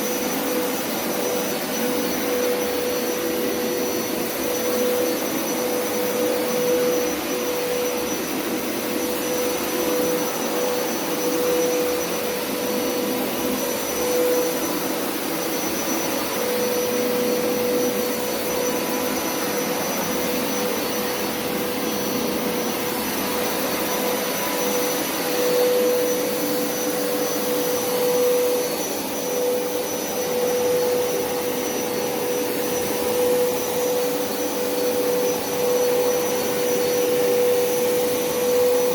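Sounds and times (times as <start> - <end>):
carpet cleaner motor whining: 0.0 - 38.9.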